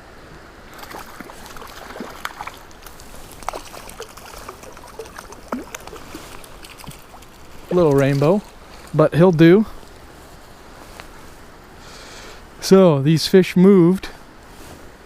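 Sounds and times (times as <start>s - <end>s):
stream flowing: 0.0s - 13.0s
water splashing and dripping: 0.7s - 10.1s.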